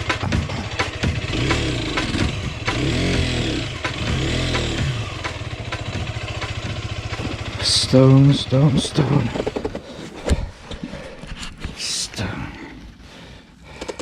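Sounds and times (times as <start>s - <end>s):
motorcycle engine revving: 0.0s - 10.6s
sharp engine knocks: 0.0s - 10.6s.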